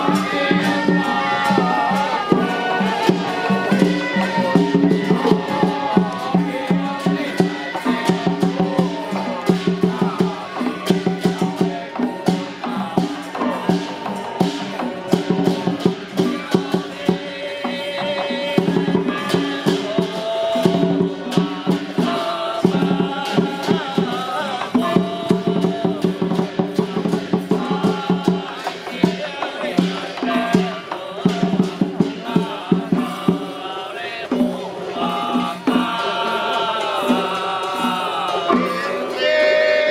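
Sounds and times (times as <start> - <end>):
chanted melodic line: 0.0 - 25.9, 34.6 - 39.9
rapid percussion strikes: 0.0 - 39.9.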